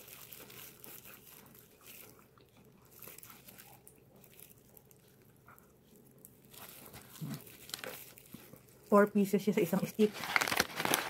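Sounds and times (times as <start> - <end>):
chewing with soft crunches: 0.0 - 9.2.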